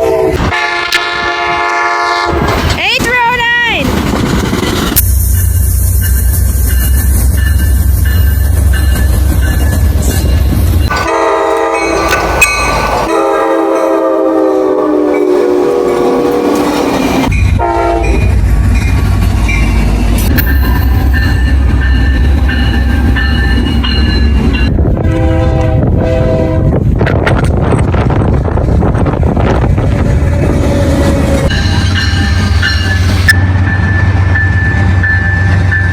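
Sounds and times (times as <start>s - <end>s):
locomotive air horn blasts: 0.0s - 2.5s, 10.9s - 12.4s, 13.1s - 16.7s, 17.6s - 18.3s, 25.0s - 26.7s
low train rumble: 0.0s - 35.9s.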